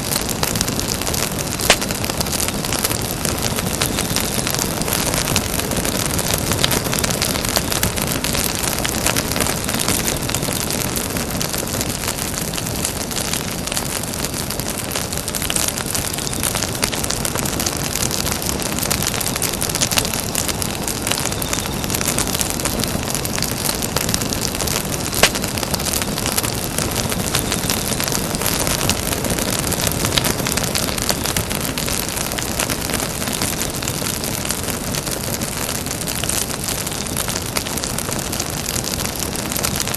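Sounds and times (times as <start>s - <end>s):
campfire crackling: 0.0s - 39.9s
sharp fire pop: 25.0s - 26.0s.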